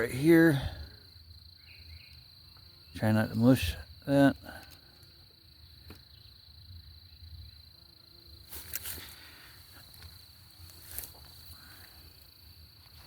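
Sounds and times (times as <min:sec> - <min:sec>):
crickets trilling: 0:00.0 - 0:13.0
short rustles: 0:08.5 - 0:11.7.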